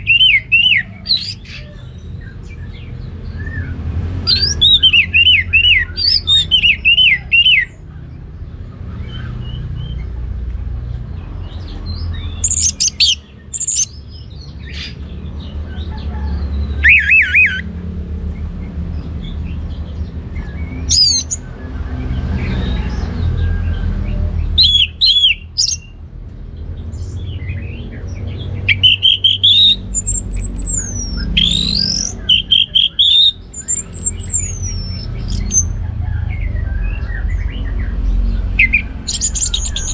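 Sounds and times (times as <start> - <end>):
thrush singing: 28.2 - 39.9.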